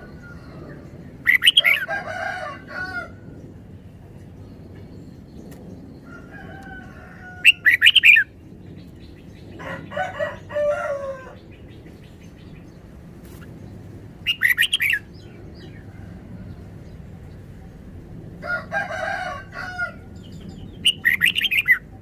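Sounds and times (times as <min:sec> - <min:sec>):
bird chirping phrases: 0:00.0 - 0:01.9, 0:11.2 - 0:15.9, 0:20.1 - 0:22.0
rooster crowing: 0:01.4 - 0:03.3, 0:06.0 - 0:07.9, 0:09.6 - 0:11.4, 0:18.4 - 0:20.2.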